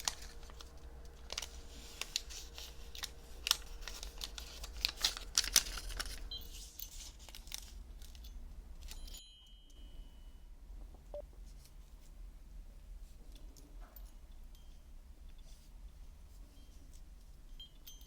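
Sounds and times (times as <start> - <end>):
bandage wrapper peeled and crinkled: 0.0 - 8.3.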